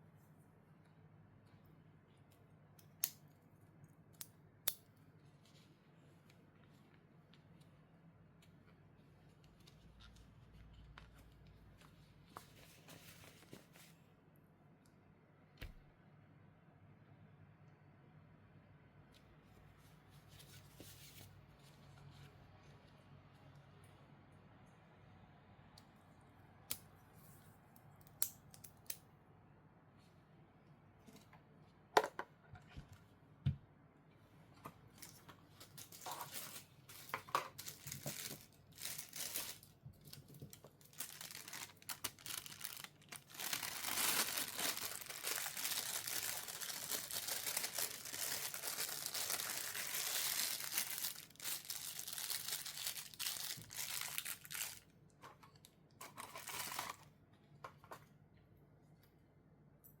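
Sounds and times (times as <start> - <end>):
packaging clicks and rustles: 35.0 - 54.9, 56.0 - 57.1
packaging crinkling and tearing: 35.0 - 54.9, 56.1 - 57.1.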